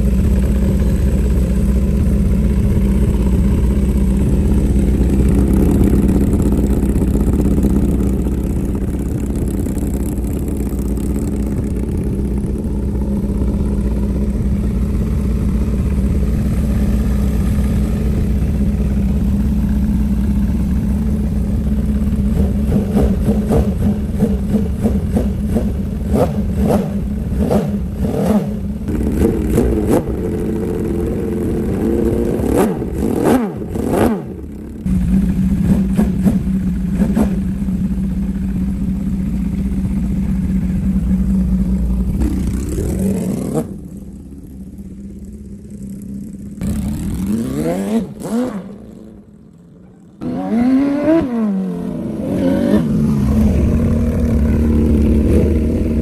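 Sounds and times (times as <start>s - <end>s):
engine revving: 22.2s - 37.6s, 42.0s - 44.1s, 46.6s - 49.5s, 50.2s - 56.0s.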